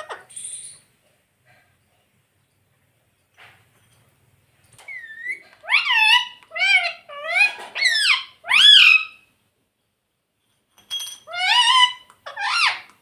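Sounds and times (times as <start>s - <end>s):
parrot shrill calls: 4.9s - 9.3s, 11.3s - 12.9s.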